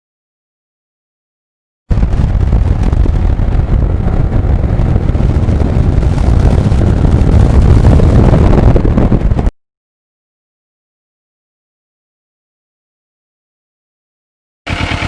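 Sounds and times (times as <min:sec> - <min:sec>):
motorcycle engine rumble: 0:01.9 - 0:09.5
wind on microphone: 0:01.9 - 0:09.5.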